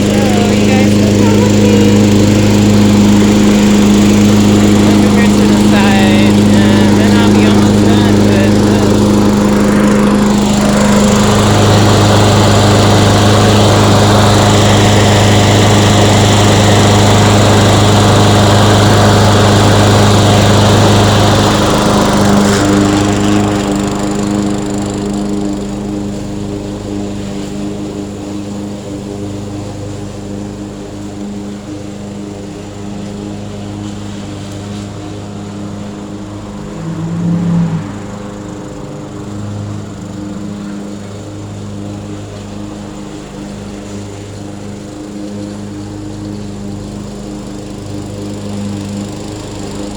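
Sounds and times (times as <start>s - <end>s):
lawn mower engine running: 0.0s - 49.9s.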